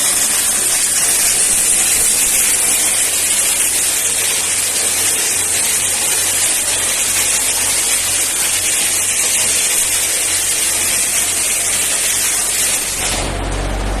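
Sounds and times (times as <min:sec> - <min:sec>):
low engine-like hum: 0:12.8 - 0:14.0.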